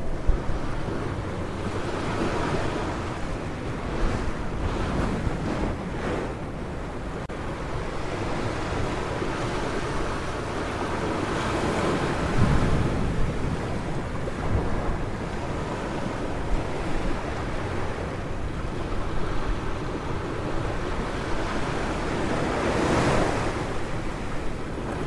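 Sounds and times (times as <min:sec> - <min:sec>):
ocean waves breaking on beach: 0:00.0 - 0:25.0
wind on microphone: 0:00.0 - 0:25.0.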